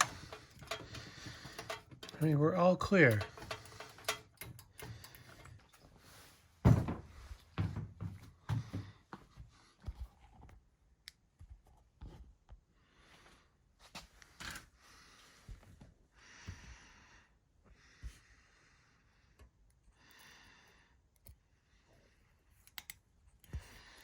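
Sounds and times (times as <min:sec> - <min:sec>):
metal parts clicking: 0:00.0 - 0:05.8.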